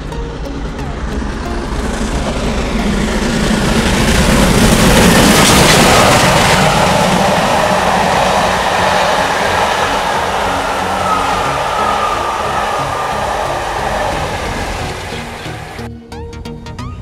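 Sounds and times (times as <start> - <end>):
train passing: 0.2 - 15.9.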